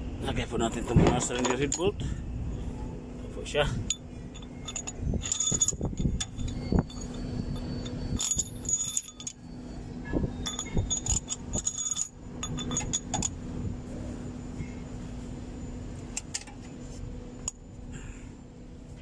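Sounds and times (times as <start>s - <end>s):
steady low hum: 0.0s - 19.0s
metal bolts clinking: 0.9s - 1.9s, 3.8s - 9.5s, 10.3s - 13.4s.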